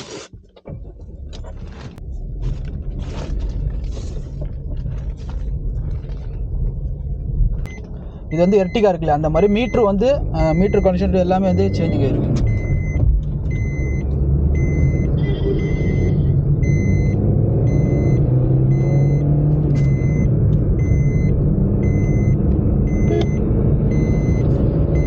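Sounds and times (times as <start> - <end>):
car engine and road rumble: 0.0 - 25.0
car warning chime beeps: 7.6 - 25.0.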